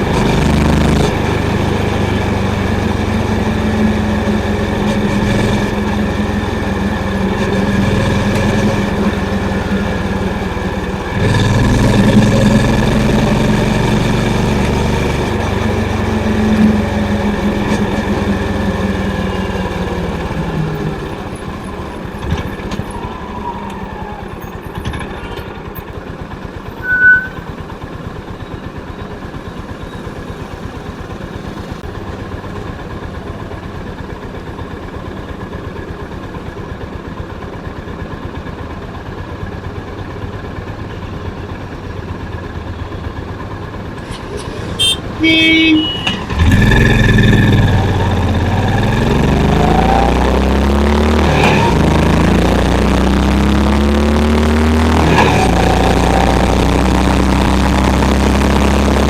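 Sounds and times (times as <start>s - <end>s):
motorcycle engine idling: 1.2s - 26.8s, 27.5s - 49.4s
high beep: 26.8s - 27.4s.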